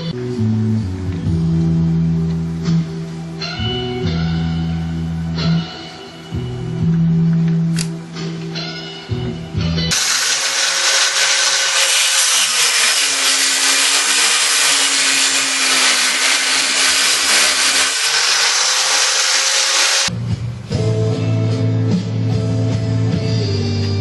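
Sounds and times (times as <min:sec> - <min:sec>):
vibrating sander buzzing: 0:09.9 - 0:20.1.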